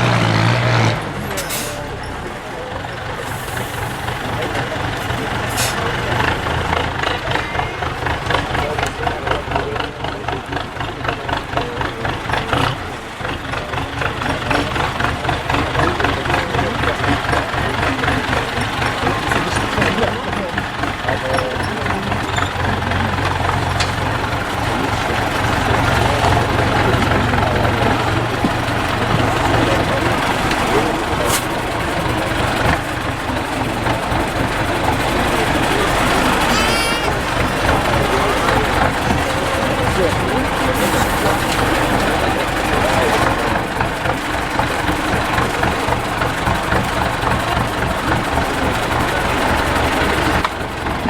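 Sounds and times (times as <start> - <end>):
truck diesel engine idling: 0.0 - 51.0.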